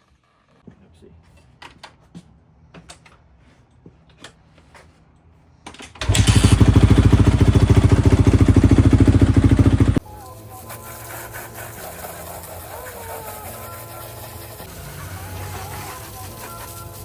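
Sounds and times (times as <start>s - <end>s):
motorcycle engine running: 6.0s - 10.0s.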